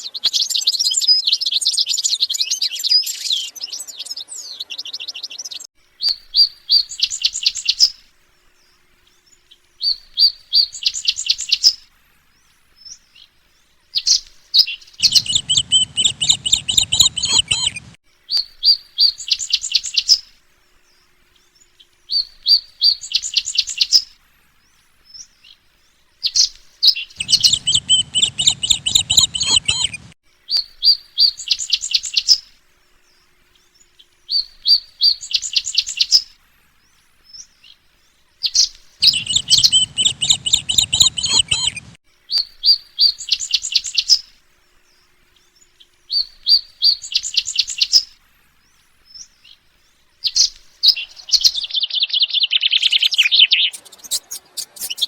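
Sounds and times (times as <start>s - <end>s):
songbirds chirping: 0.0s - 55.0s
low rumble: 15.0s - 18.0s, 27.2s - 30.2s, 39.0s - 42.0s.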